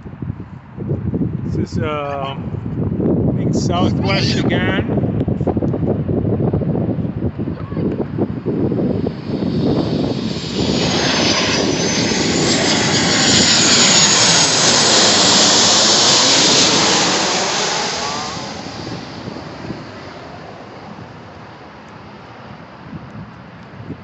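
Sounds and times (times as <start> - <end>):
high jet engine whine: 3.4 - 5.3, 6.7 - 23.6
jet airliner engine roar: 3.4 - 24.0.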